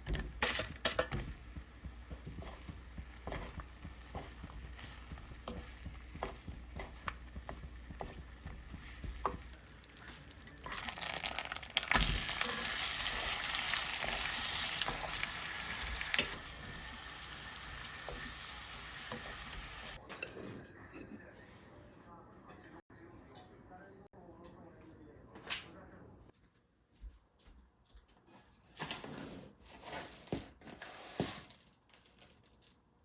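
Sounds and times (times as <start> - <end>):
food sizzling in a pan: 2.1 - 20.0.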